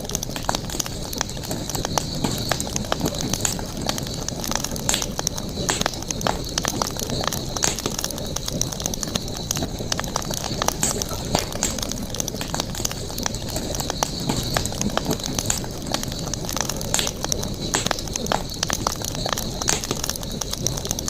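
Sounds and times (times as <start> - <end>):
campfire crackling and popping: 0.0 - 21.0
steady high hiss: 0.0 - 21.0.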